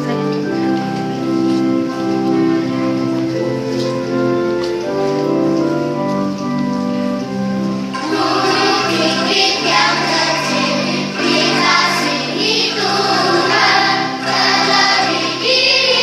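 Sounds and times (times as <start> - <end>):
angklung ensemble chords: 0.0 - 16.0
children's choir singing: 7.9 - 16.0.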